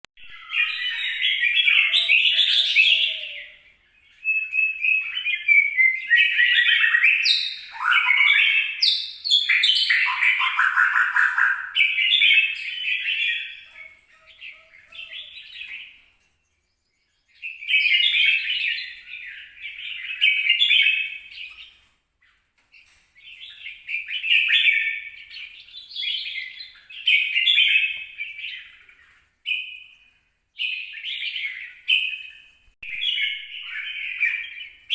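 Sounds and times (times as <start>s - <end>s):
bird singing warbling phrases: 0.2s - 21.8s, 23.2s - 30.0s, 30.6s - 34.9s.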